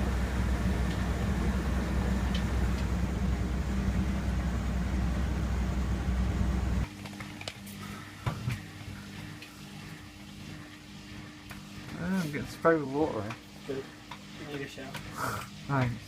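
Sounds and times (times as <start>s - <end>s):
faint hum: 0.0s - 12.6s
washing machine humming and rushing: 0.0s - 16.0s.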